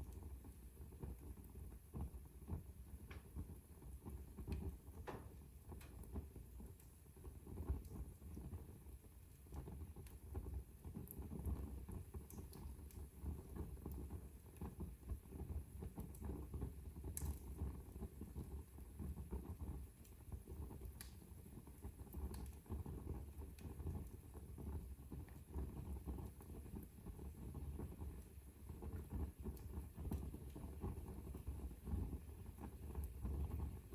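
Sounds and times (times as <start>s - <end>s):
wood fire crackling and popping: 0.0s - 33.9s.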